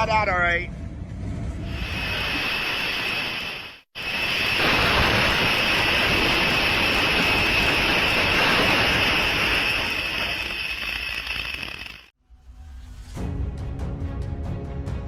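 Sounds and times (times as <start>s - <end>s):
train passing at speed: 0.7s - 11.0s.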